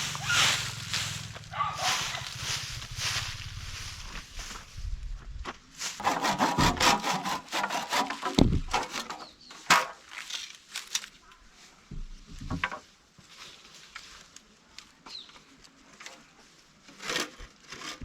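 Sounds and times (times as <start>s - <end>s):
rasping on wood: 6.0s - 8.4s.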